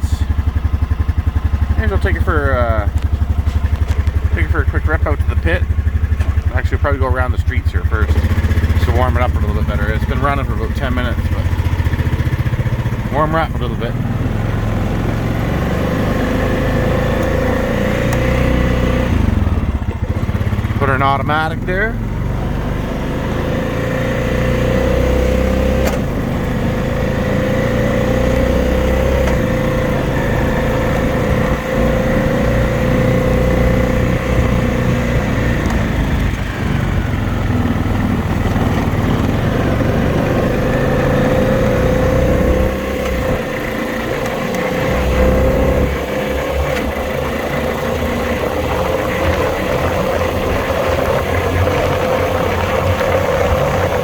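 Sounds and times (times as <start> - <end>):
atv engine running: 0.0 - 54.0
engine whine: 0.0 - 54.0.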